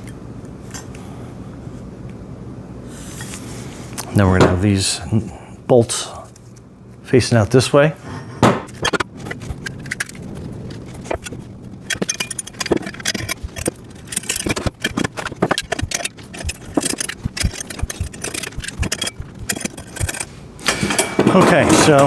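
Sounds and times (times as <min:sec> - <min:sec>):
metal parts clinking and rattling: 0:08.7 - 0:22.0.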